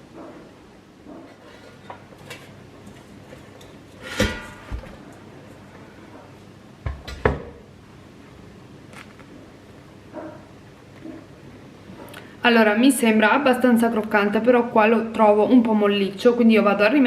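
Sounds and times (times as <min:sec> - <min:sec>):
metallic cookware clatter: 0:01.3 - 0:02.6, 0:03.6 - 0:05.0.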